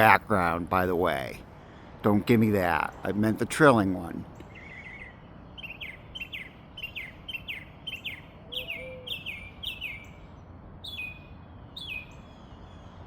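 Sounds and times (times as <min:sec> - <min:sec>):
songbird chirps: 0:00.0 - 0:13.0
songbird long falling calls: 0:04.3 - 0:13.0.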